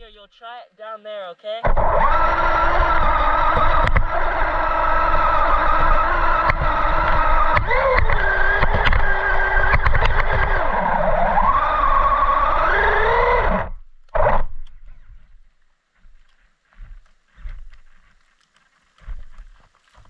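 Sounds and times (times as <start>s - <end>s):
electric motor whining: 1.6s - 16.3s
chassis rattling and knocking: 1.7s - 13.6s.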